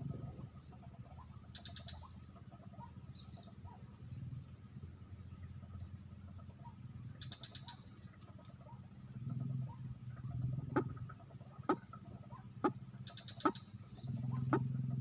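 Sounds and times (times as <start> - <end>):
low pulsing animal chorus: 0.0 - 15.0
rapid high ticks: 12.6 - 14.7.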